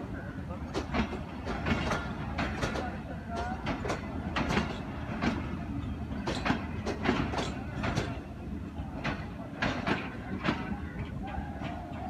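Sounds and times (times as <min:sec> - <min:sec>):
low train rumble: 0:00.0 - 0:12.0
wheels clicking over rail joints: 0:00.7 - 0:08.2.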